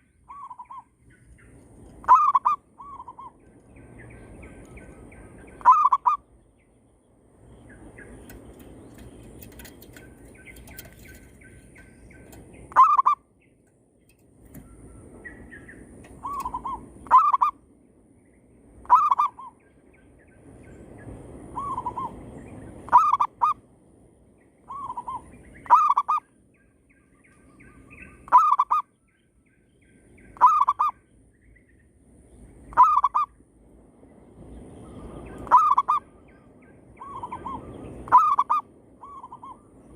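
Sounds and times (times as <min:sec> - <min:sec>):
doves cooing: 0:16.1 - 0:17.5.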